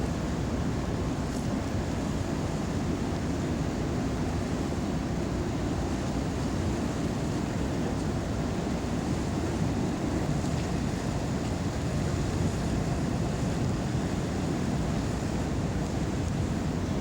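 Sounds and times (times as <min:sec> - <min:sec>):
wind and sea rumble: 0:00.0 - 0:17.0.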